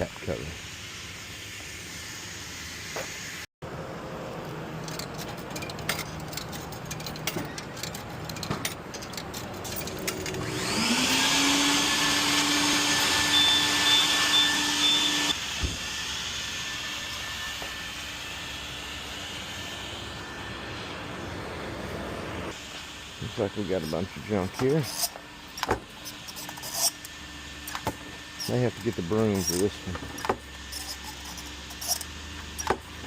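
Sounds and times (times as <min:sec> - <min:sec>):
vacuum motor whining: 0:10.0 - 0:22.6
thump: 0:15.6 - 0:15.8.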